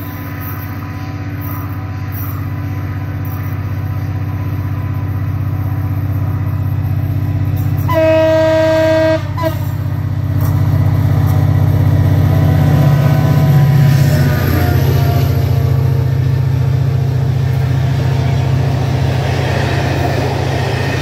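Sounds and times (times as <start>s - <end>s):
diesel train engine drone: 0.0s - 21.0s
train horn blast: 7.8s - 9.9s.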